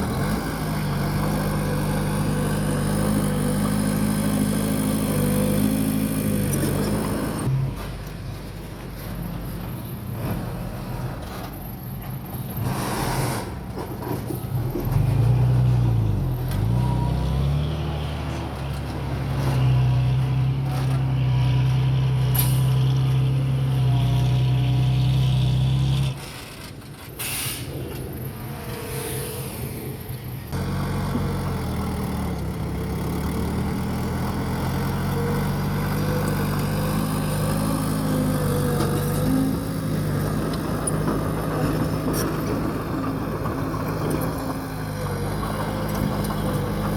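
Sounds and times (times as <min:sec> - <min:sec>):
diesel earthmoving machinery running: 0:00.0 - 0:46.9.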